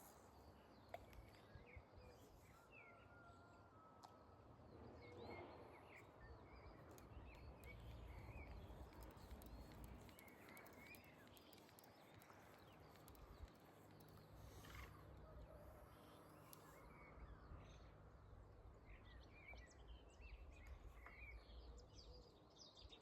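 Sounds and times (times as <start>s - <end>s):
small birds chirping: 5.9s - 18.0s.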